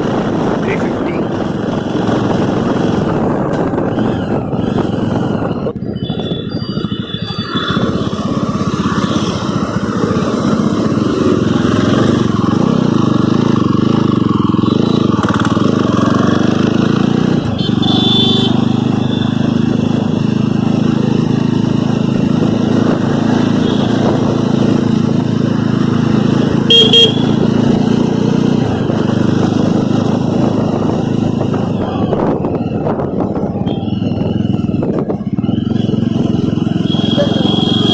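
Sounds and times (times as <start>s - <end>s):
motorcycle engine running: 0.0s - 37.9s
road noise: 0.0s - 37.9s
horn toots: 17.4s - 19.4s, 23.5s - 24.3s, 26.6s - 27.5s, 36.8s - 37.9s.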